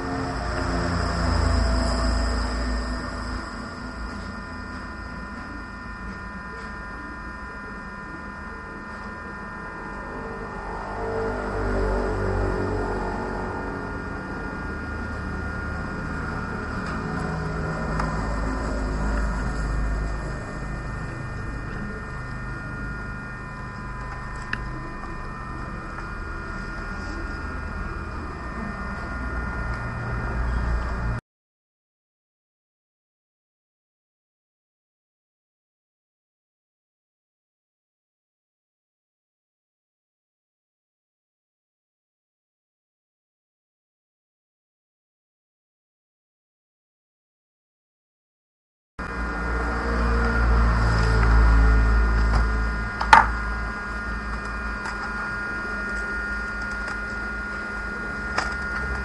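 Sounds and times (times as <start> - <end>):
steady hum with held tones: 0.0 - 31.2, 49.0 - 59.0.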